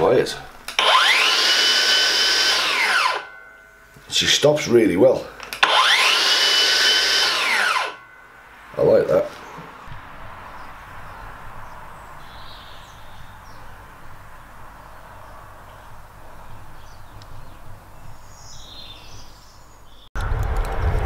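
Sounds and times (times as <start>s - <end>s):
bird chirps: 9.3s - 20.1s
low hum: 20.2s - 21.0s.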